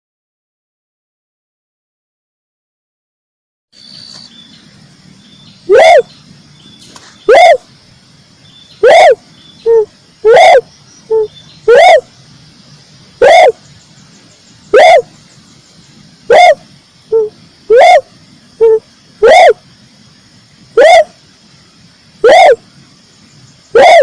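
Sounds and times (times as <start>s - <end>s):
dove cooing: 5.7s - 6.1s, 7.3s - 7.7s, 8.8s - 12.1s, 13.2s - 13.6s, 14.7s - 15.2s, 16.2s - 19.6s, 20.8s - 21.2s, 22.2s - 22.6s, 23.7s - 24.0s.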